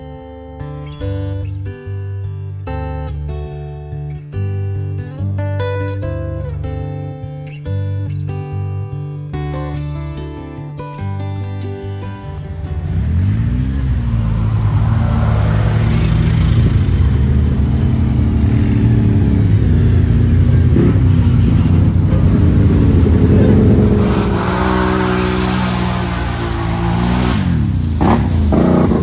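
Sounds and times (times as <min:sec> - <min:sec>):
atv engine revving: 0:12.3 - 0:29.0.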